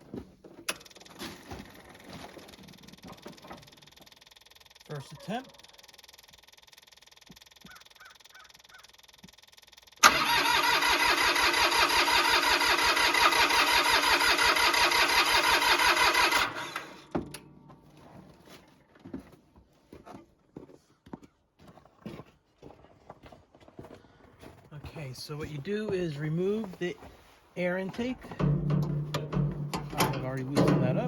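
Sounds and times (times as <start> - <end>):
diesel engine cranking without firing: 10.0 - 17.5, 28.0 - 31.0.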